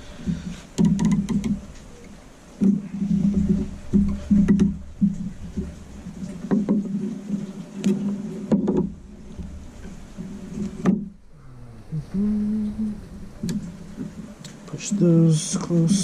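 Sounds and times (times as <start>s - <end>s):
low steady hum: 0.0s - 16.0s
sharp knocks and clicks: 0.2s - 1.9s, 2.6s - 11.2s.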